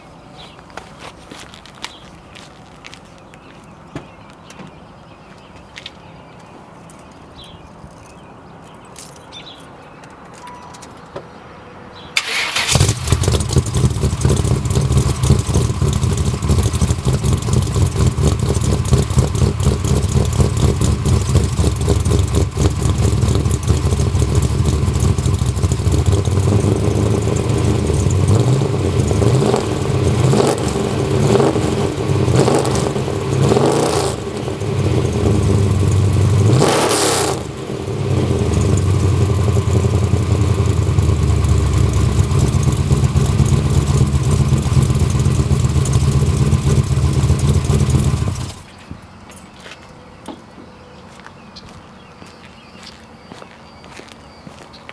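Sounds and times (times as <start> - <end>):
car engine: 12.2 - 48.8.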